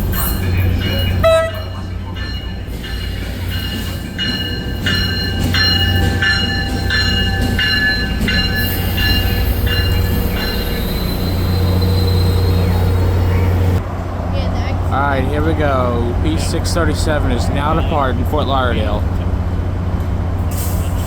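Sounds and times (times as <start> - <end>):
train bell ringing: 0.0 - 13.8
low engine rumble: 0.0 - 21.0.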